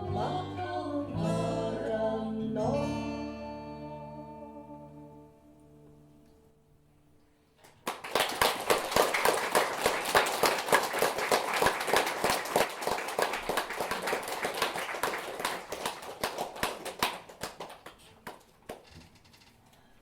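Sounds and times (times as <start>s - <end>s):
audience applauding: 7.7s - 18.9s.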